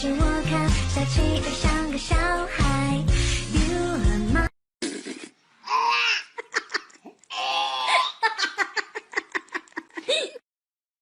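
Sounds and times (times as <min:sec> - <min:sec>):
person laughing: 0:06.0 - 0:07.2, 0:07.8 - 0:10.4.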